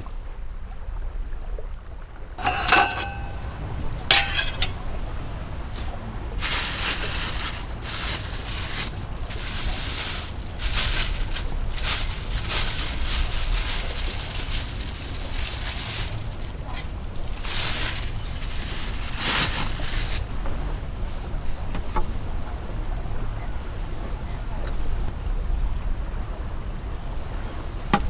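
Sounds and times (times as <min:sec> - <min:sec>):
rustling hissing gusts: 0:02.4 - 0:22.3.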